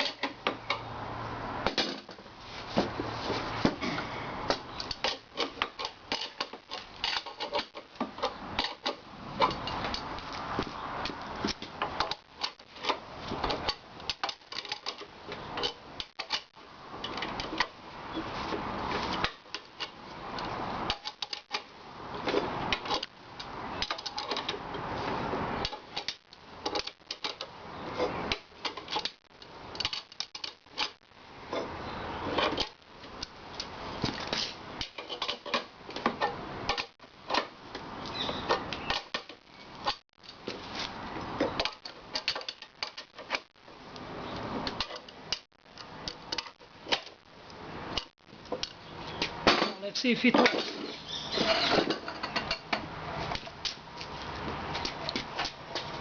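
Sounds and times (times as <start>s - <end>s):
metal parts clicking and knocking: 0.0s - 0.9s, 4.5s - 10.2s, 11.0s - 17.8s, 19.2s - 21.7s, 22.3s - 24.9s, 25.6s - 31.7s, 32.3s - 40.6s, 41.4s - 43.6s, 44.6s - 47.2s
metal scraping: 46.1s - 53.5s.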